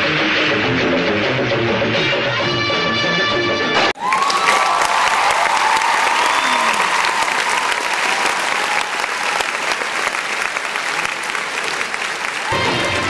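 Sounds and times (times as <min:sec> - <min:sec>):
crowd clapping and cheering: 0:03.8 - 0:13.0.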